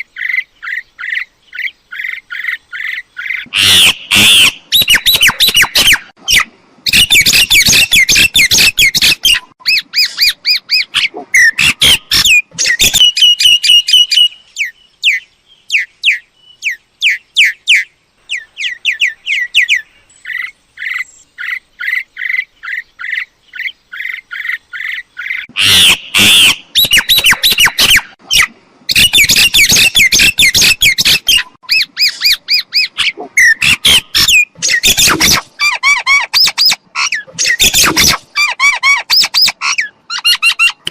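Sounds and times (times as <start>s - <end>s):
myna chattering and whistling: 24.4s - 40.9s.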